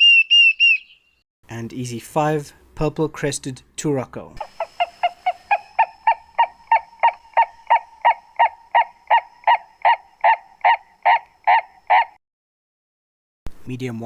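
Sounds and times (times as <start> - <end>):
bird croaking calls: 0.0 - 1.2, 4.4 - 12.2.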